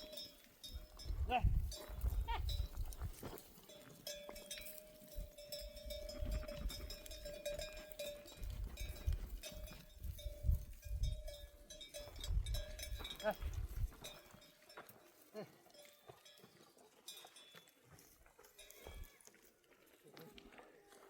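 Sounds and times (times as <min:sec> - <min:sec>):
neck bells clinking: 0:00.0 - 0:17.9
wind rumbling on microphone: 0:00.8 - 0:03.2, 0:05.9 - 0:07.2, 0:08.4 - 0:11.5, 0:12.1 - 0:14.0.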